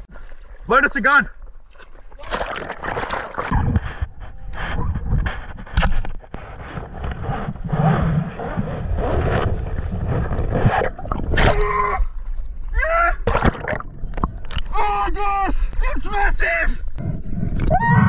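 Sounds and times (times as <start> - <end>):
underwater rushing water: 7.7 - 14.8.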